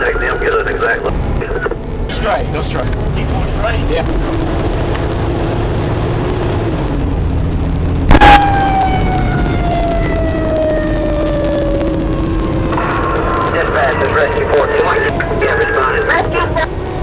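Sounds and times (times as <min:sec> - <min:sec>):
engine and road rumble: 0:00.0 - 0:17.0
loud horn blast: 0:08.1 - 0:08.9
siren winding down: 0:08.1 - 0:17.0.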